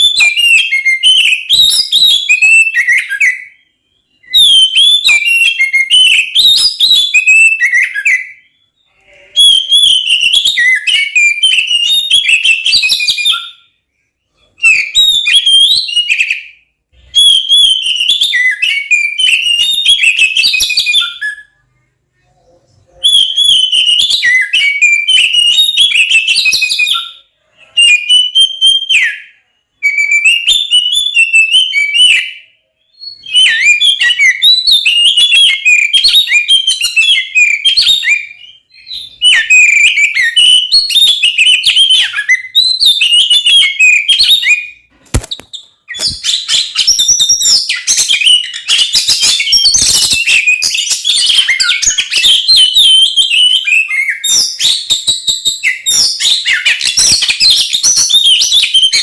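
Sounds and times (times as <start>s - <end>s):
bird singing whistles and chatter: 0.0s - 13.7s, 14.6s - 21.7s, 22.3s - 59.0s
sharp click: 45.0s - 46.2s.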